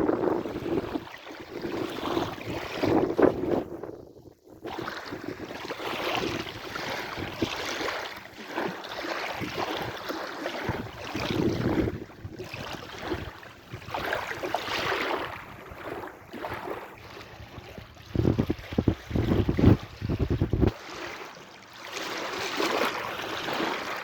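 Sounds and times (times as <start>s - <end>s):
sea waves breaking: 0.0s - 3.9s, 4.5s - 24.0s
wind rumbling on microphone: 0.0s - 7.8s, 10.6s - 20.8s.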